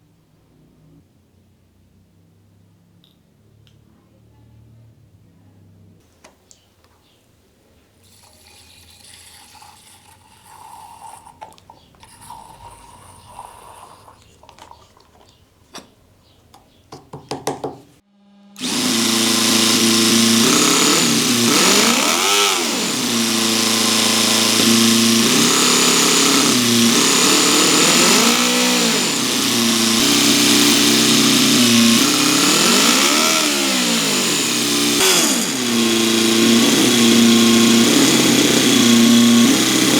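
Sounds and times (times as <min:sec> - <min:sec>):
model engine running and revving: 0:18.6 - 0:39.9.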